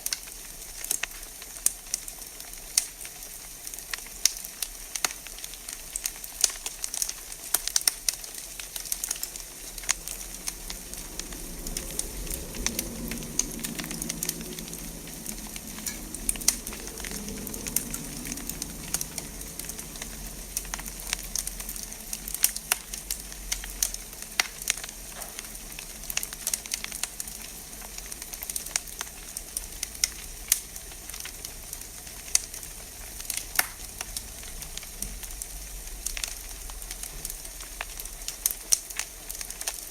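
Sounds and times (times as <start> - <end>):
wood fire crackling and popping: 0.0 - 39.9
low rumble: 9.2 - 37.8.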